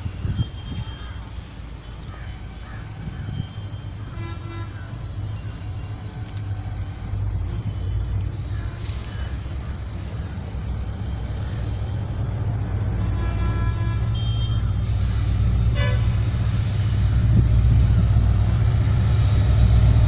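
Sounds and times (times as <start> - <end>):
train rumble: 0.0 - 20.0
locomotive horn blasts: 4.0 - 5.0, 12.4 - 20.0.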